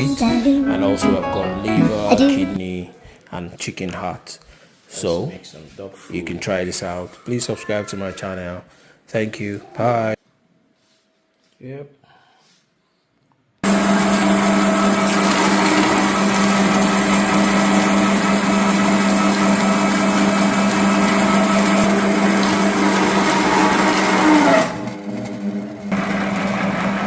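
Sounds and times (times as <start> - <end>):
electric food grinder humming: 13.6 - 27.0.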